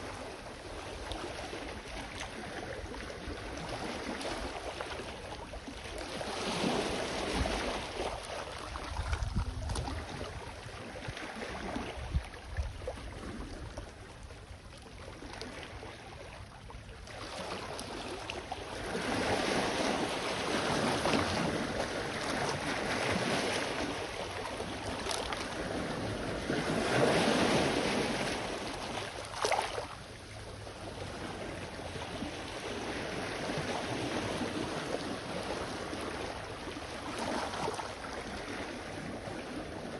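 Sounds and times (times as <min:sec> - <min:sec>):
wind rumbling on microphone: 0:00.0 - 0:29.2.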